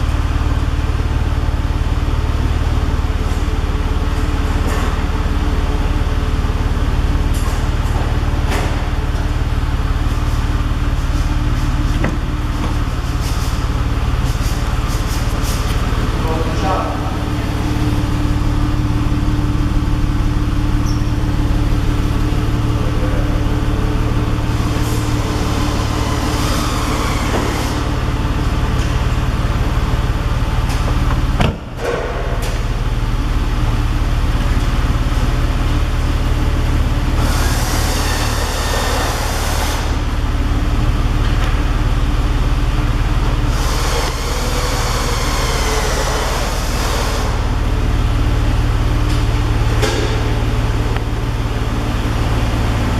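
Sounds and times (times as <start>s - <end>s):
car engine drone: 0.0s - 52.9s
hiss: 37.2s - 40.1s.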